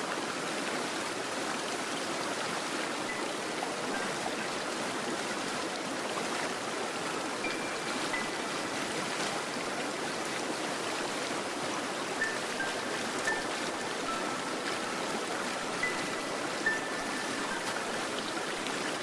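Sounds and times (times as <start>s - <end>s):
stream flowing over rocks: 0.0s - 19.0s.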